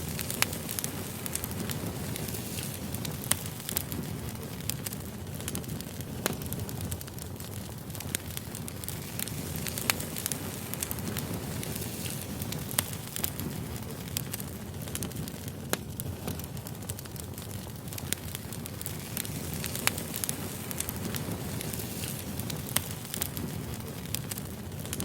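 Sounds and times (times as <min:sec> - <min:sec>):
low rush of flame: 0:00.0 - 0:25.0
wood crackling and popping: 0:00.0 - 0:25.0.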